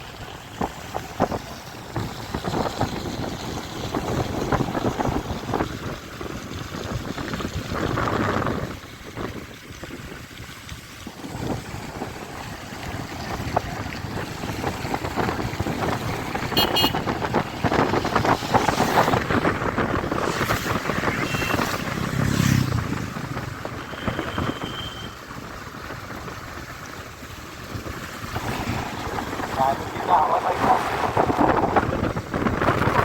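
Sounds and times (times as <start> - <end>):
wind buffeting microphone: 0.0 - 24.6, 25.2 - 33.0
motorcycle road noise: 0.0 - 33.0.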